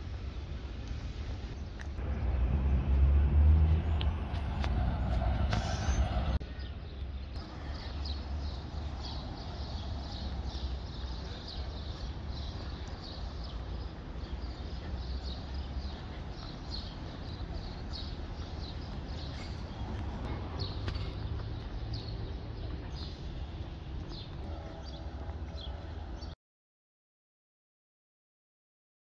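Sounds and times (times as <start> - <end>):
small birds chirping: 3.6 - 26.4.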